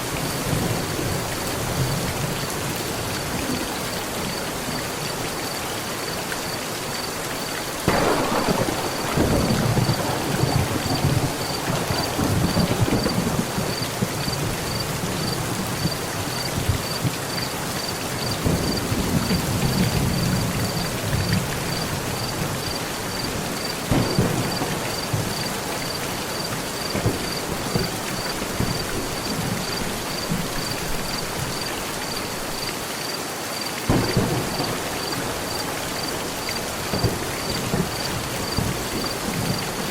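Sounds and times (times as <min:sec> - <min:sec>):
heavy rain on metal roof: 0:00.0 - 0:39.9
thunder cracks and rumbles: 0:07.9 - 0:17.4, 0:18.2 - 0:31.6, 0:33.9 - 0:39.9.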